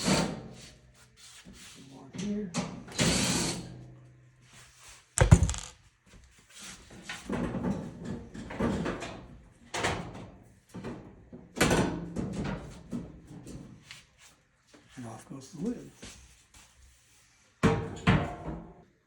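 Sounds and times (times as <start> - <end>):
sheet-metal cabinet knocks and clanks: 5.2 - 5.7.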